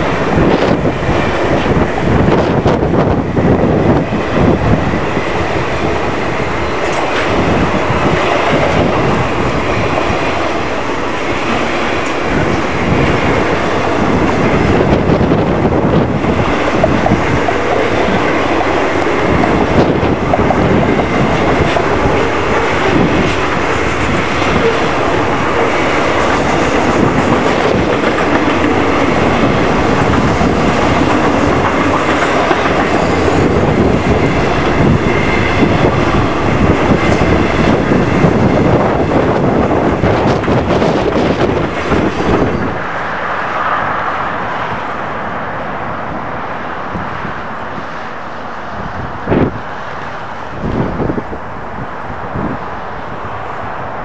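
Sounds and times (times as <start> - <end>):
train wheels clicking over rail joints: 0.0 - 42.8.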